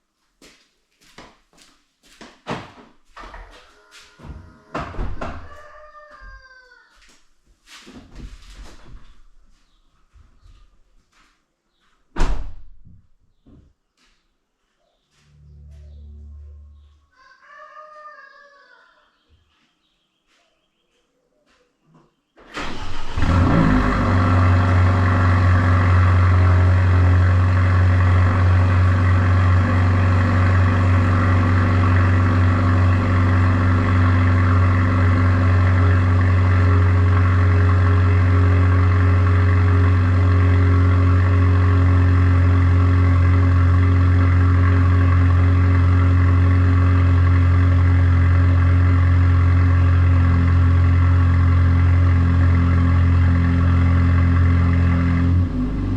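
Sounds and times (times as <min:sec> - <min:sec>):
car engine starting and idling: 0:22.4 - 0:55.9.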